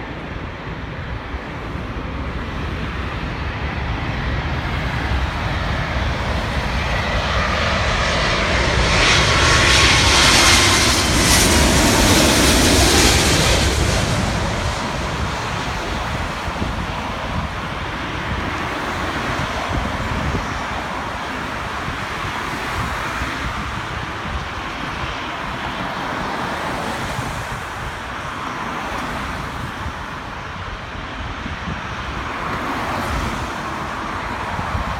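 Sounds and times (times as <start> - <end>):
jet engine rush: 0.0 - 34.9
wind buffeting microphone: 0.0 - 34.9.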